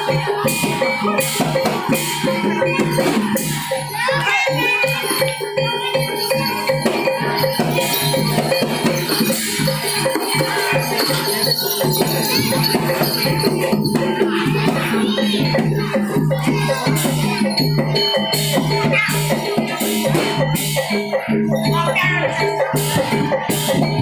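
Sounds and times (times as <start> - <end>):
gamelan music: 0.0 - 24.0
jingling rattle: 0.0 - 24.0.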